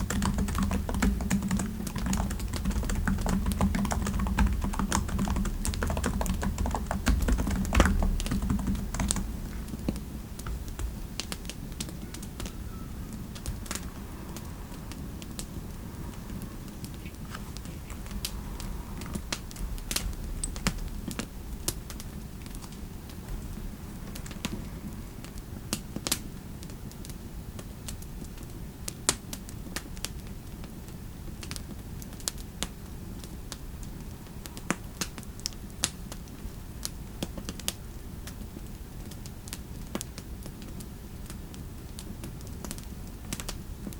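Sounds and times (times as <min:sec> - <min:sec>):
typing on computer keyboard: 0:00.0 - 0:12.5
low fireplace rumble: 0:00.0 - 0:28.5.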